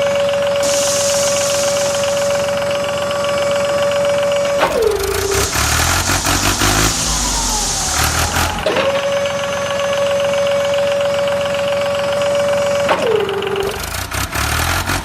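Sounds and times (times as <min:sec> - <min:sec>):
electric motor whining: 0:04.8 - 0:09.8.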